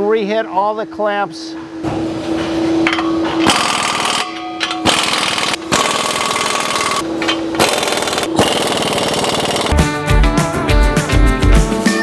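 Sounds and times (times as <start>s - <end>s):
impact wrench hammering: 2.8s - 9.8s.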